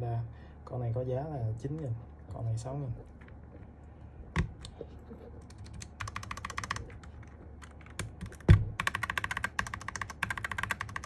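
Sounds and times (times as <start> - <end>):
mechanical keyboard clacking: 5.4 - 11.0.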